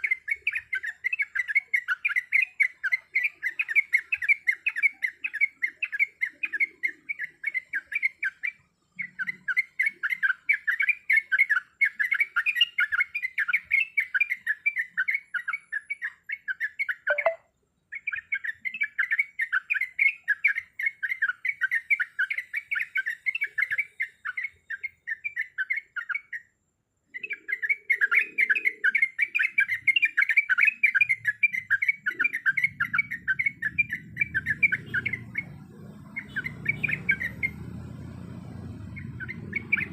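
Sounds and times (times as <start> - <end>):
bird chattering: 0.0 - 26.5, 27.2 - 37.8, 38.8 - 39.9.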